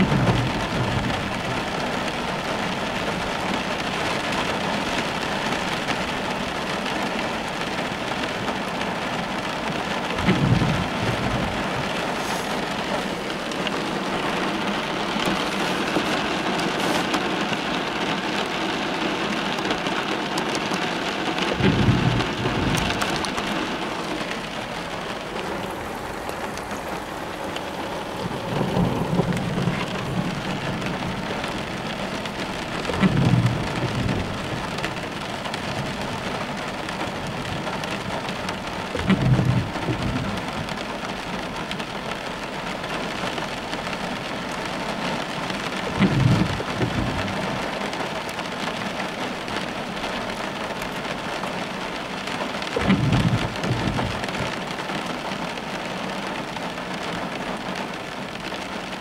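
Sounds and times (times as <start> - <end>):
heavy rain on car roof and glass: 0.0 - 59.0
low rumbles: 8.3 - 18.3, 19.8 - 41.7, 52.7 - 54.8.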